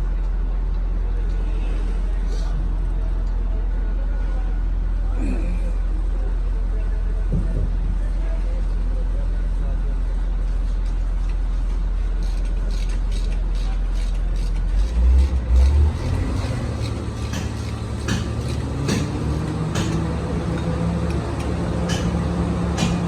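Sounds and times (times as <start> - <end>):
diesel engine running: 13.8 - 23.0.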